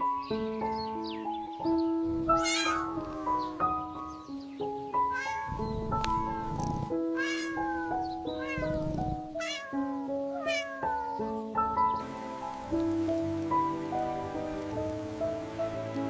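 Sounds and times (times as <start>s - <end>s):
gentle background music: 0.0s - 16.0s
cat meowing: 2.3s - 3.4s, 5.0s - 6.5s, 7.1s - 11.4s.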